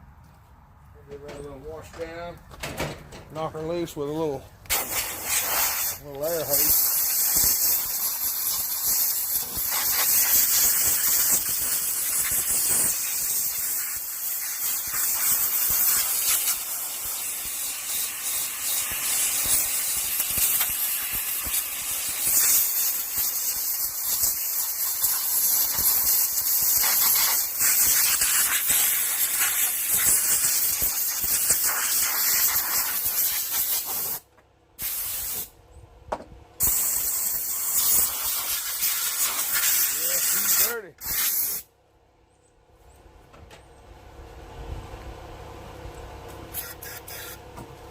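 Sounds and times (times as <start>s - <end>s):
compressed air hissing: 4.7s - 34.2s, 34.8s - 35.5s, 36.6s - 41.7s, 46.5s - 47.4s.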